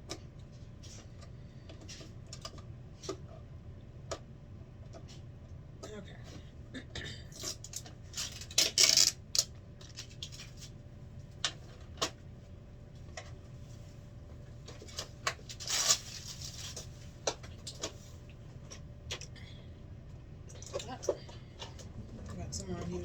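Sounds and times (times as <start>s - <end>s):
plastic wrap crinkling: 15.5s - 16.9s.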